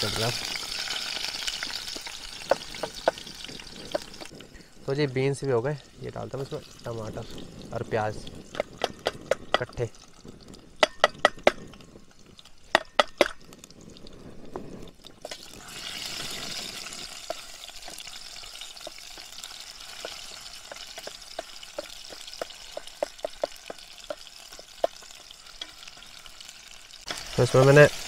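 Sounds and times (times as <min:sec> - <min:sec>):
vegetables sizzling in hot oil: 0:00.0 - 0:04.3, 0:15.0 - 0:28.0.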